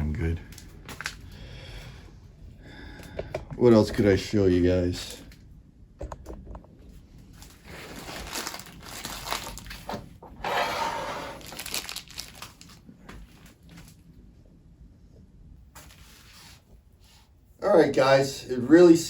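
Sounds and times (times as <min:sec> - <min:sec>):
rustling and crinkling handling: 0:00.0 - 0:01.4, 0:06.2 - 0:10.3, 0:11.2 - 0:14.4.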